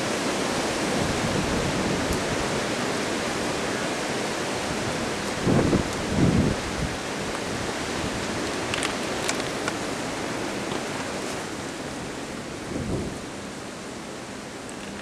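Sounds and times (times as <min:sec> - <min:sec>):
wind blowing: 0:04.6 - 0:13.3
wind buffeting microphone: 0:04.7 - 0:11.8
faint clicks: 0:08.2 - 0:11.6, 0:14.7 - 0:15.0.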